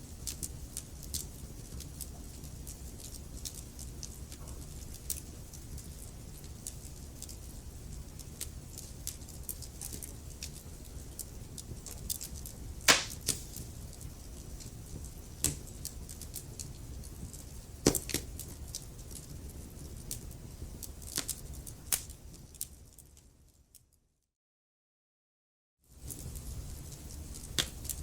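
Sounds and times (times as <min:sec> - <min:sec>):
low rumble of fire: 0:00.0 - 0:23.6, 0:25.9 - 0:28.0
wood fire crackling: 0:00.2 - 0:23.2, 0:26.0 - 0:28.0.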